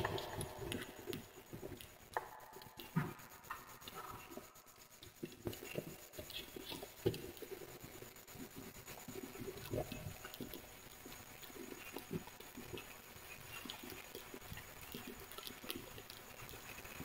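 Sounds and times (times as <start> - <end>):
faint hiss: 0.0 - 17.0
wood fire crackling: 0.0 - 17.0.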